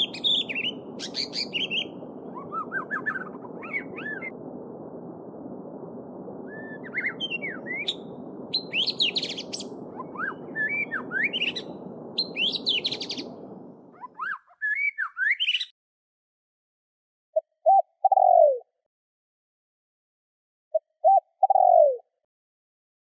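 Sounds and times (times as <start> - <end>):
songbirds chirping and singing: 0.0 - 4.4, 6.5 - 13.4.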